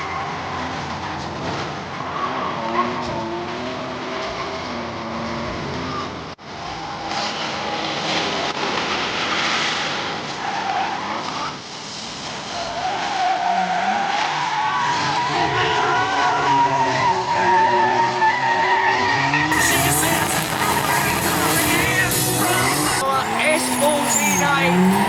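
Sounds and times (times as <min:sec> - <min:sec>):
car engine: 0:00.0 - 0:25.0
tyres squealing: 0:12.6 - 0:25.0.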